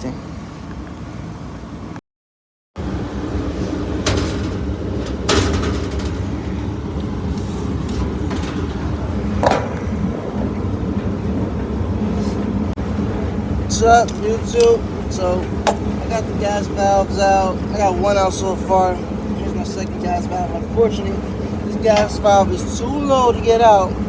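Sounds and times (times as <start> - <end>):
hvac equipment humming: 2.8 - 24.0
metallic clicks and clanks: 3.5 - 11.9.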